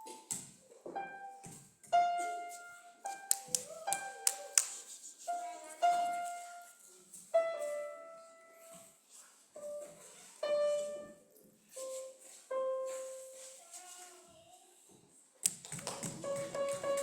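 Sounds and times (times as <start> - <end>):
piano-like notes: 9.6 - 13.4, 16.1 - 17.0.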